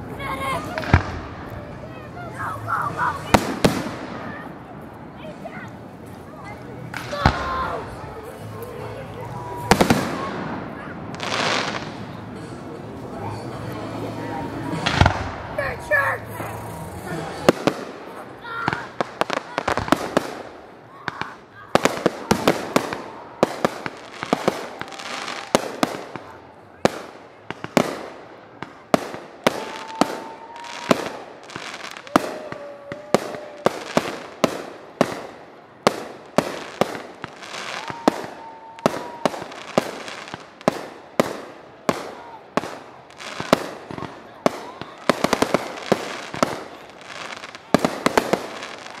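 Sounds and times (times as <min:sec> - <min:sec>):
fireworks bangs and cracks: 0:00.0 - 0:49.0
fireworks whistling: 0:26.9 - 0:49.0.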